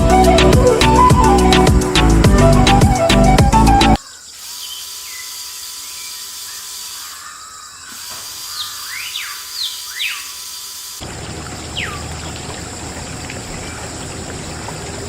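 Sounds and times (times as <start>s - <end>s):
music: 0.0s - 4.0s
birds chirping: 3.9s - 15.0s.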